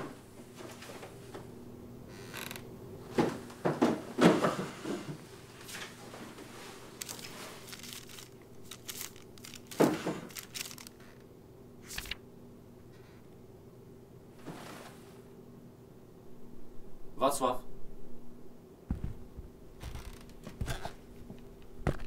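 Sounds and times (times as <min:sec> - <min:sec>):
papers shuffling: 0:03.2 - 0:11.2, 0:11.8 - 0:12.2.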